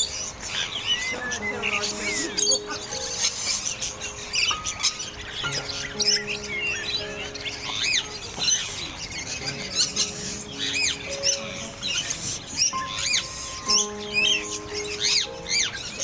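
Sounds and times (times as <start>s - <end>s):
background music with held notes: 0.0s - 16.0s
birds chirping and squawking: 0.0s - 16.0s.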